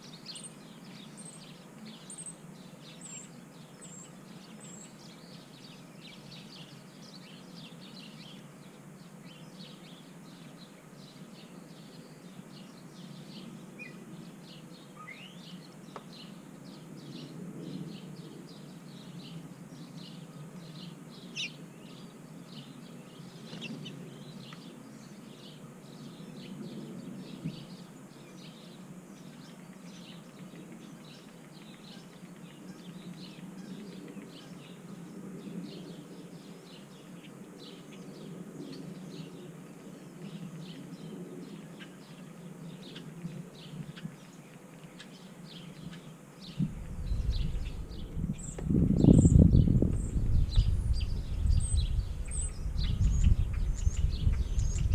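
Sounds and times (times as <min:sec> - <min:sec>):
birds chirping and calling: 0:00.0 - 0:54.9
low background rumble: 0:46.5 - 0:54.9.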